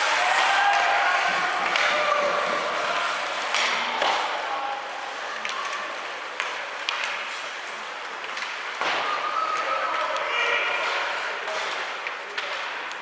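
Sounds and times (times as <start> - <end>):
crowd noise and chatter: 0.0 - 13.0
hockey sticks and puck clacking: 0.0 - 13.0.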